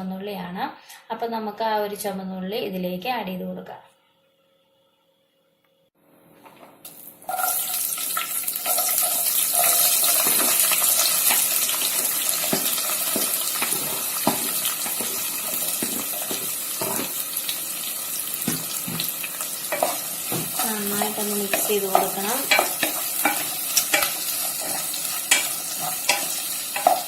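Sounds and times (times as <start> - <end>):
shallots sizzling in hot oil: 6.9 - 27.0
stirring knocks: 10.2 - 17.2, 18.4 - 27.0.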